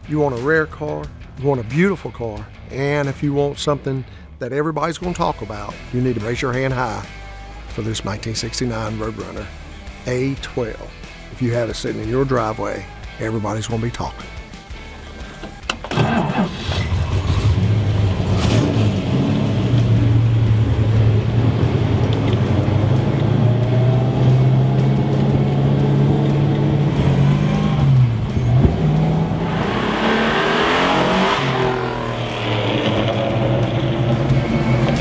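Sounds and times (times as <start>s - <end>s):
car engine starting: 5.0s - 35.0s
engine revving: 15.8s - 35.0s.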